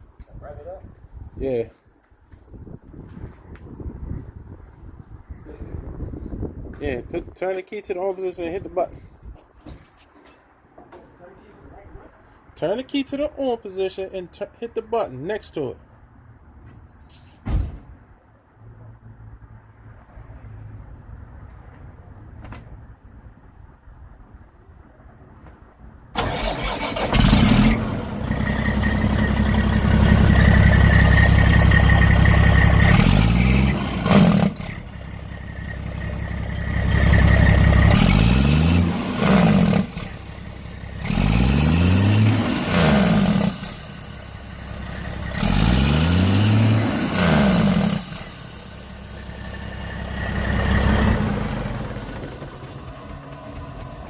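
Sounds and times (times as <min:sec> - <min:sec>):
diesel truck engine revving: 0:26.2 - 0:54.0.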